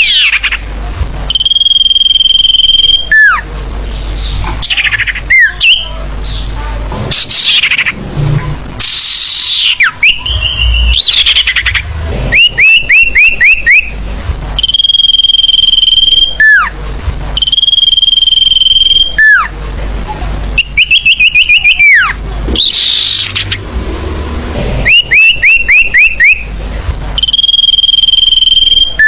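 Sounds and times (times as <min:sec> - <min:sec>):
upslurred bird chirps: 0:00.0 - 0:00.6, 0:04.2 - 0:06.5, 0:07.1 - 0:08.0, 0:08.8 - 0:14.0, 0:14.6 - 0:16.7, 0:20.6 - 0:23.6, 0:24.8 - 0:26.5
long high bird whistles: 0:08.8 - 0:14.0, 0:14.6 - 0:16.7, 0:17.4 - 0:19.4, 0:20.6 - 0:23.6, 0:24.8 - 0:26.5, 0:27.2 - 0:29.0.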